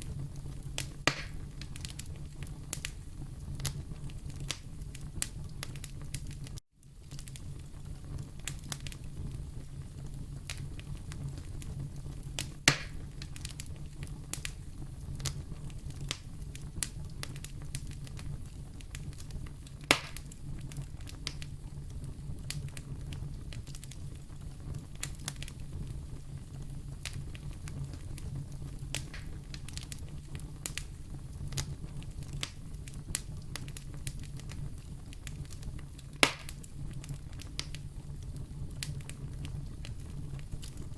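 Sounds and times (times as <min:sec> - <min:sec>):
fire popping: 0:00.0 - 0:40.9
fireplace fire crackling: 0:00.0 - 0:40.9.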